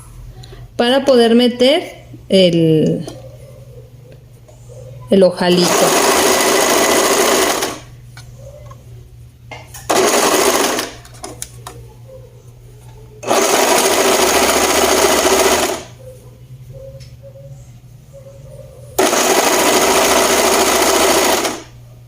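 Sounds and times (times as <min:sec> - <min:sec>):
sewing machine stitching: 0:05.5 - 0:07.8, 0:09.9 - 0:11.0, 0:13.2 - 0:15.9, 0:19.0 - 0:21.7.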